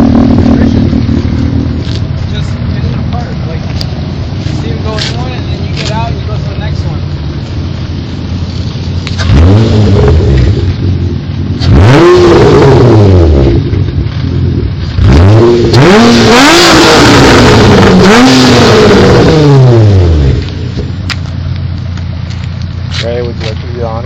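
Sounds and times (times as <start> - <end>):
car engine revving loud exhaust: 0.0 - 23.6.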